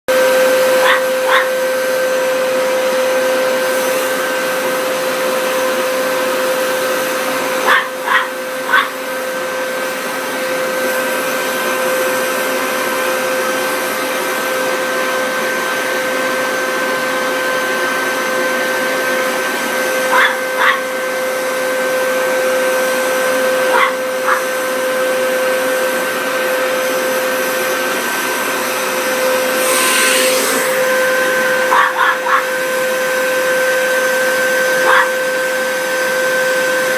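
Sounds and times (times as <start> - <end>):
vacuum cleaner running: 0.1 - 36.9
dog barking: 0.8 - 1.6, 7.6 - 9.0, 20.1 - 20.9, 23.7 - 24.5, 31.7 - 32.5, 34.8 - 35.2.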